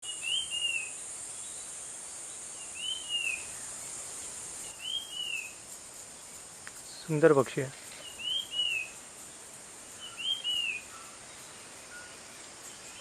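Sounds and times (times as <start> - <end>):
songbird whistled call: 0.0 - 1.0, 2.6 - 3.6, 4.6 - 5.6, 8.0 - 9.0, 10.0 - 11.2
high insect drone: 0.0 - 13.0.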